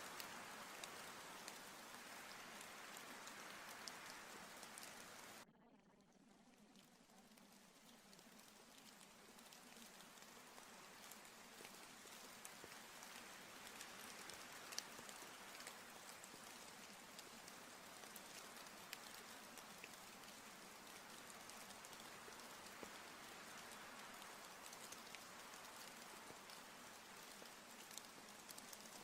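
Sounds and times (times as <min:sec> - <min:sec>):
single raindrop ticks: 0:00.0 - 0:05.4, 0:10.9 - 0:26.6, 0:27.2 - 0:29.0
faint rain falling: 0:00.0 - 0:05.5, 0:06.4 - 0:29.0.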